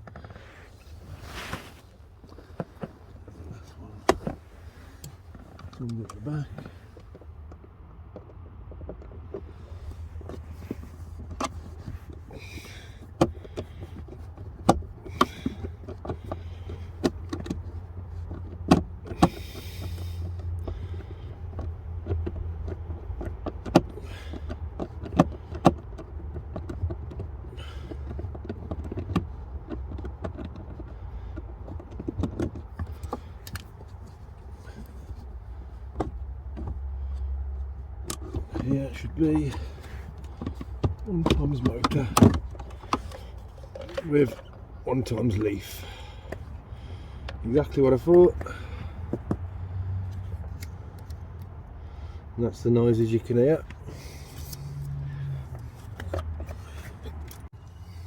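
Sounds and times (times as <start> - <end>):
short scrapes: 0.4 - 2.0
sharp plastic clicks and knocks: 37.9 - 44.6.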